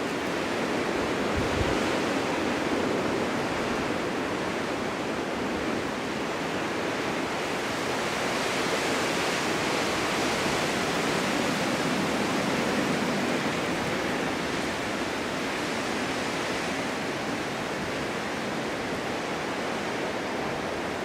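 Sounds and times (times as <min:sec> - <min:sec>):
strong wind blowing: 0:00.0 - 0:07.6.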